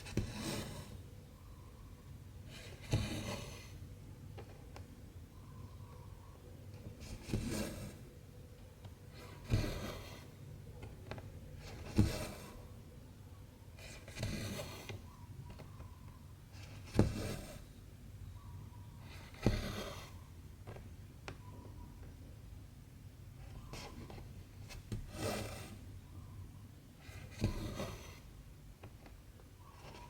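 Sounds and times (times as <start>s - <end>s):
thread rasping through fabric: 11.6s - 12.6s.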